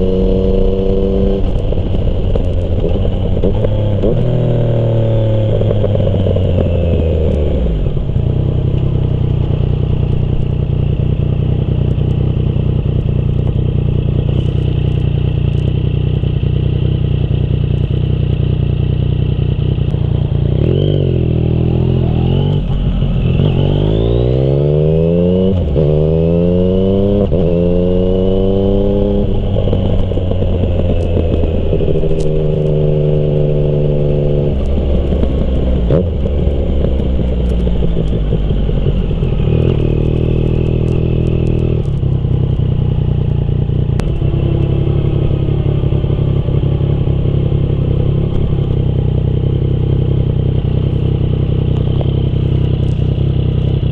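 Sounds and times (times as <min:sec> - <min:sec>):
motorcycle engine cruising: 0:00.0 - 0:53.9.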